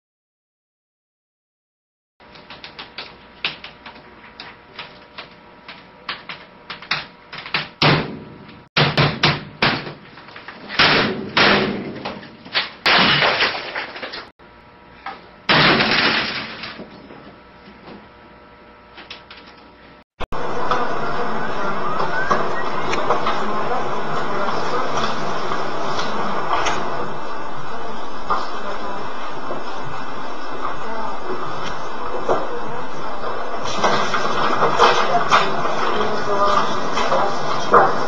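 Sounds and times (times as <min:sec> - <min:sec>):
desk bangs and crashes: 0:07.5 - 0:14.3, 0:15.5 - 0:17.0.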